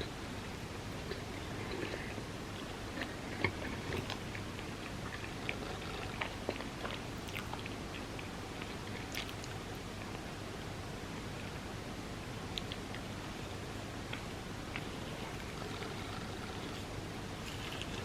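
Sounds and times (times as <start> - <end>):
person chewing soft cake: 0.0 - 10.4, 12.5 - 18.0
faint steady hiss: 0.0 - 18.0
wet mouth clicks: 12.6 - 13.1.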